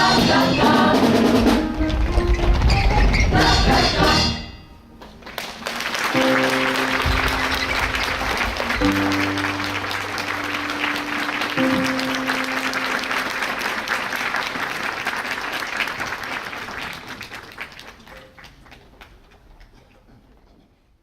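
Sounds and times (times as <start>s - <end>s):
audience applause: 5.0s - 19.8s
wind band held notes: 5.8s - 15.8s.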